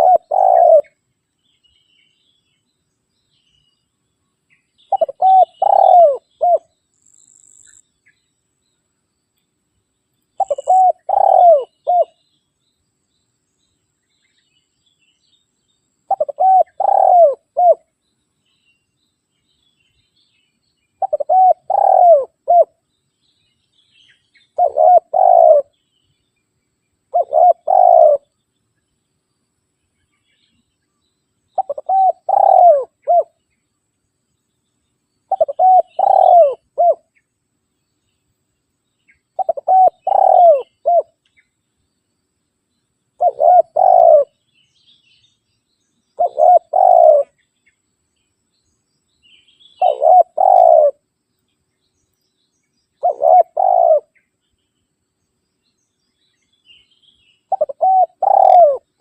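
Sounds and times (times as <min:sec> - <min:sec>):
dove cooing: 0:00.0 - 0:01.0, 0:04.9 - 0:06.7, 0:10.4 - 0:12.2, 0:16.1 - 0:17.9, 0:21.0 - 0:22.8, 0:24.6 - 0:25.7, 0:27.1 - 0:28.3, 0:31.6 - 0:33.4, 0:35.3 - 0:37.1, 0:39.4 - 0:41.2, 0:43.2 - 0:44.4, 0:46.2 - 0:47.4, 0:49.8 - 0:51.0, 0:53.0 - 0:54.2, 0:57.5 - 0:59.0.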